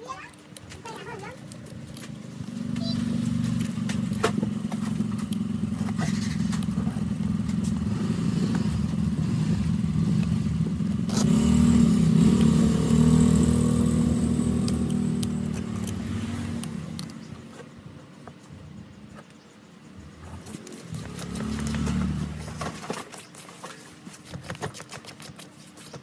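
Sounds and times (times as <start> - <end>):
motor droning: 2.4 - 17.6.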